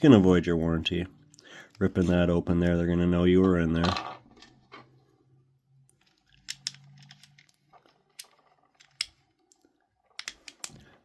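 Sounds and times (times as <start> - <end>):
plastic parts being handled: 5.8 - 11.0.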